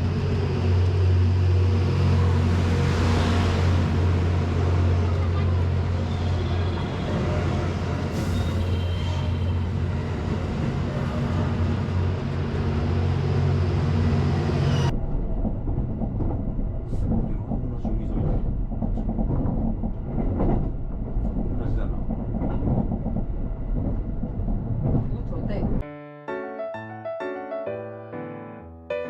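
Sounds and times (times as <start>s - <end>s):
rail running noise: 0.0s - 25.8s
train engine low hum: 0.0s - 25.8s.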